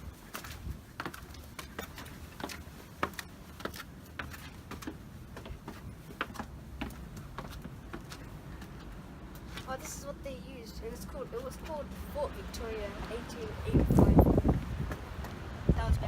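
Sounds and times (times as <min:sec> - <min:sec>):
footsteps on hard surface: 0:00.0 - 0:10.1.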